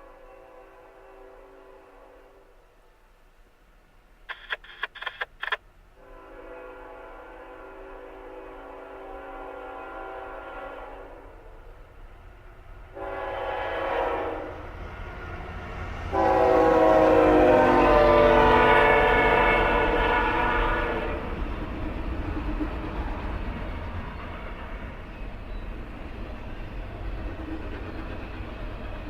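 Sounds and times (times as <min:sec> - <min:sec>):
locomotive air horn chord: 0:00.0 - 0:02.6, 0:06.0 - 0:11.5, 0:13.0 - 0:14.6, 0:16.1 - 0:21.4
train rumbling by: 0:00.0 - 0:04.2, 0:05.7 - 0:29.0.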